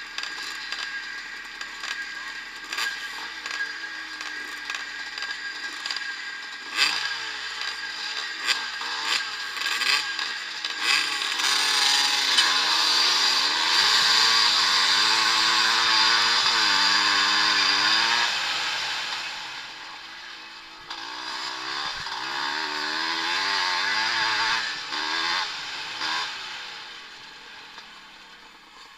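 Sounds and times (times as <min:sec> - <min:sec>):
motocross bikes revving: 0:00.0 - 0:28.9.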